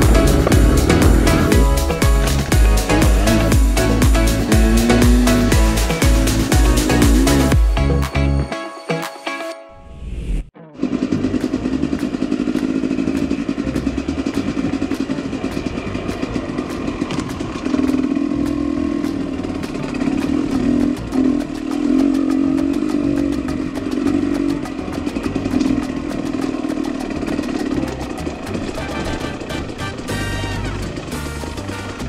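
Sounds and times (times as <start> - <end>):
fast regular ticking: 0.0 - 7.8, 10.8 - 32.0
motorcycle engine revving: 0.0 - 8.2, 10.6 - 32.0.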